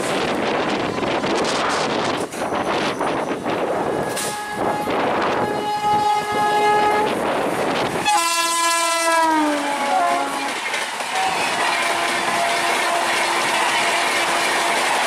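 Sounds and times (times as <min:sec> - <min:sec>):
train coaches rumbling past: 0:00.0 - 0:15.0
locomotive multi-tone horn: 0:03.9 - 0:07.2, 0:08.0 - 0:14.8.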